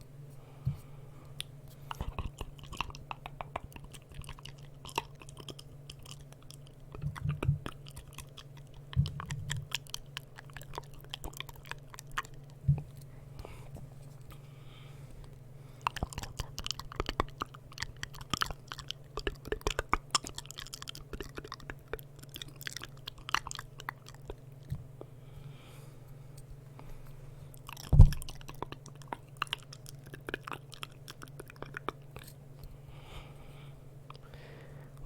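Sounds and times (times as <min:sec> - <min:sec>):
wet tongue and lip clicks: 0:01.4 - 0:13.0, 0:15.2 - 0:24.9, 0:27.5 - 0:32.7.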